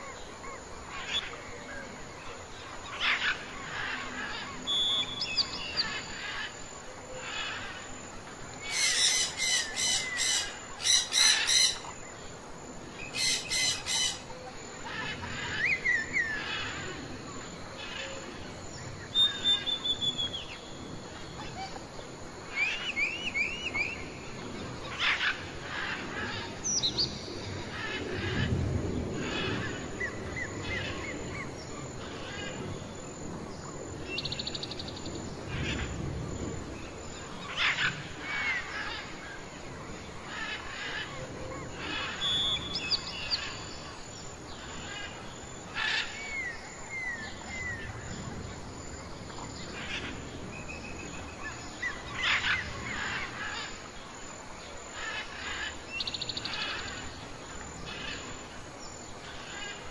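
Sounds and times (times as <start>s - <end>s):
small birds chirping and trilling: 0.0s - 6.6s, 7.2s - 59.9s
whistled bird notes: 4.7s - 5.8s, 19.1s - 20.6s, 42.2s - 43.4s.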